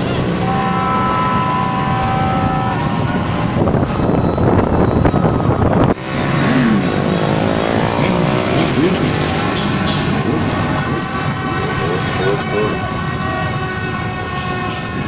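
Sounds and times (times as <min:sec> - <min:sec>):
horn blaring: 0:00.0 - 0:15.0
motorbike engines revving: 0:00.0 - 0:15.0.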